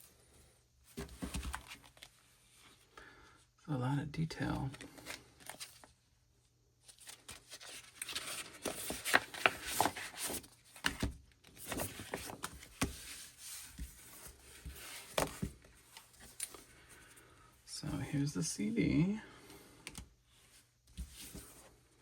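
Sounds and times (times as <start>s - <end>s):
paper and cardboard rustling: 0.9s - 2.2s, 6.8s - 17.1s, 20.9s - 21.7s.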